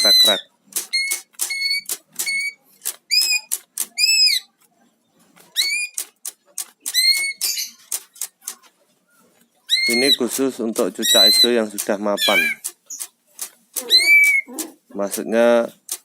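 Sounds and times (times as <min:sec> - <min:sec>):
bird giving sharp high notes: 0:12.2 - 0:12.6.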